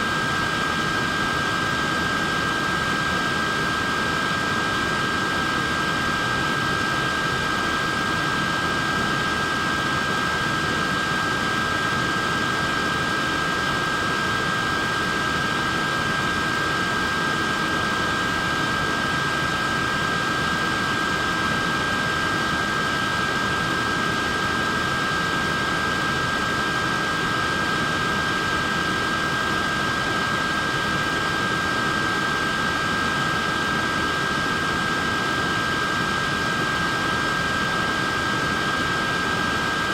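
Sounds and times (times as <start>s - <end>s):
fan air rush and motor whine: 0.0s - 39.9s.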